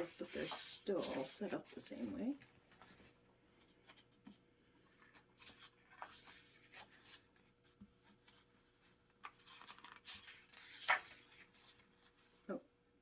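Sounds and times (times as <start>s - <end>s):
paper rustling: 0.0s - 1.8s, 4.8s - 12.4s.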